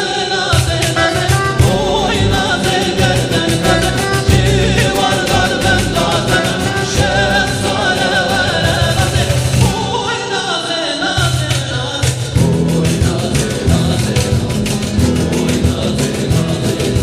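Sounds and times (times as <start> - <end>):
folk song with solo voice: 0.0 - 17.0
steady beat: 0.7 - 10.1
plucked strings: 1.0 - 10.2, 12.4 - 17.0
bass: 1.6 - 10.0, 12.4 - 17.0.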